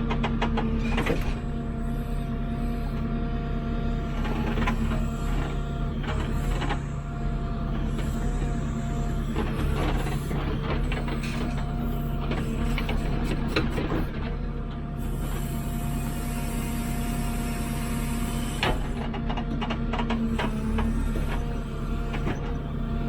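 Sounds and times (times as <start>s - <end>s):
hydraulics working: 0.4s - 23.0s
diesel engine running: 0.6s - 17.3s.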